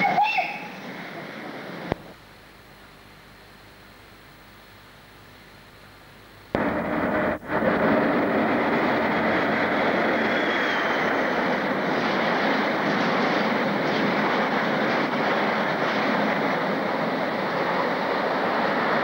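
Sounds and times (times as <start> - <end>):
freight train rumbling past: 6.5 - 19.0.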